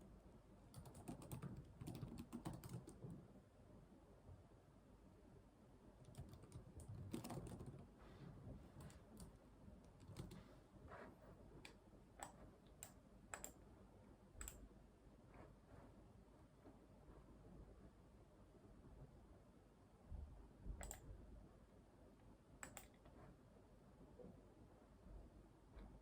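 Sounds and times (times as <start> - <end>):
typing on computer keyboard: 0.7 - 3.2, 6.1 - 7.9, 8.8 - 10.4, 12.2 - 13.6, 14.4 - 14.6, 20.8 - 21.0, 22.6 - 23.0.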